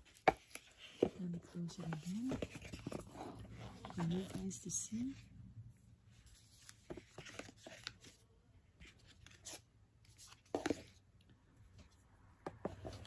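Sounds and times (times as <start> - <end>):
cardboard scrape: 0.2 - 5.2.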